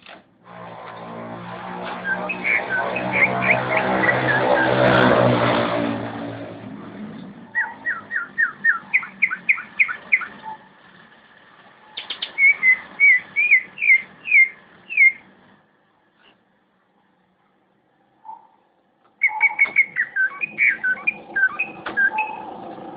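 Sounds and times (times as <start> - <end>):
loud low droning: 0.4 - 8.9
bird whistling song: 2.0 - 4.8, 7.5 - 10.6, 11.9 - 15.3, 19.2 - 22.5.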